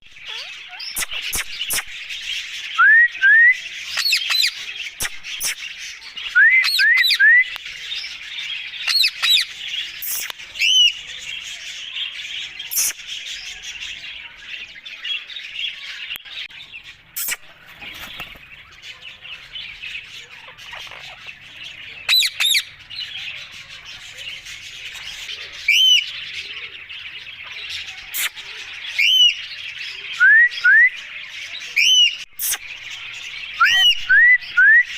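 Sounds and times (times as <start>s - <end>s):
small birds chirping: 0.0s - 34.9s
parakeet harsh squawks: 0.2s - 2.0s, 20.4s - 21.5s
parakeet whistled calls: 33.6s - 34.9s.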